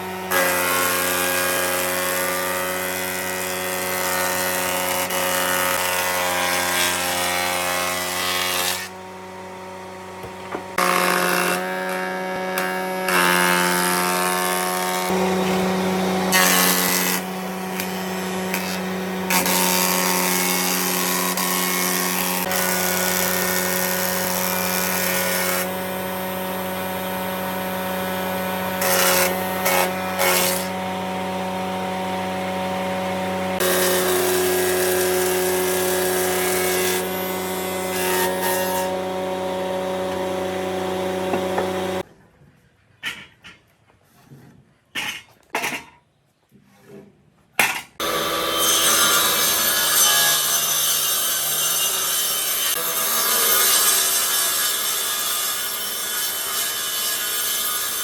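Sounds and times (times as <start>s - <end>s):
electric power tool cutting wood: 0.0s - 42.0s, 48.0s - 58.0s.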